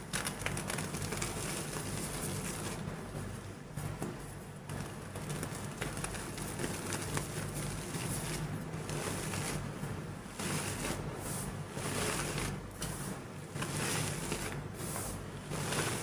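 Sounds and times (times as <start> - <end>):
chalk being crushed: 10.3 - 11.0, 11.8 - 14.6, 15.5 - 16.0.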